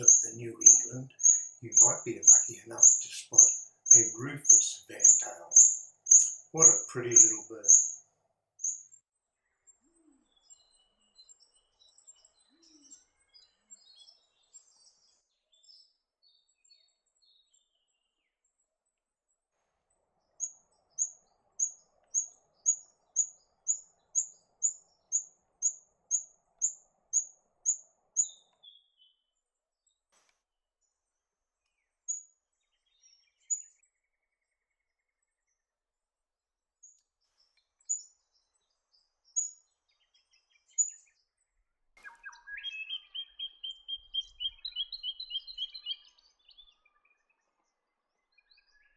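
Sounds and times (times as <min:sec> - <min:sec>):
bird twittering: 0:00.0 - 0:08.0, 0:08.6 - 0:08.9, 0:42.0 - 0:46.7
sharp high bird notes: 0:00.0 - 0:08.0.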